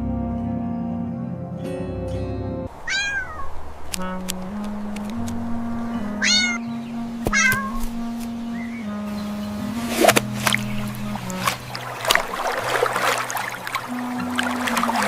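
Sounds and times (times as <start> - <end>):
soft background music: 0.0 - 2.7, 4.0 - 15.0
cat meowing: 2.8 - 3.6, 6.2 - 6.6, 7.3 - 7.9.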